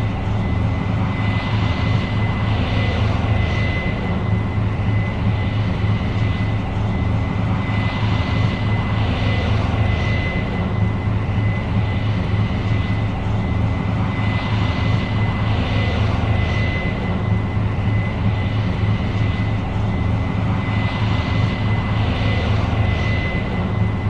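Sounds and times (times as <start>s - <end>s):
combine diesel engine drone: 0.0s - 24.0s
steady high whine: 0.0s - 24.0s.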